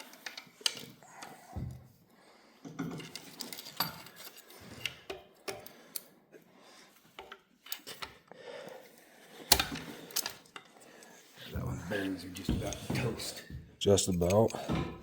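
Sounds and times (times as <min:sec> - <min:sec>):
metal tools clicking and clinking: 0:00.0 - 0:01.3, 0:02.6 - 0:06.1, 0:09.5 - 0:10.8, 0:12.3 - 0:15.0.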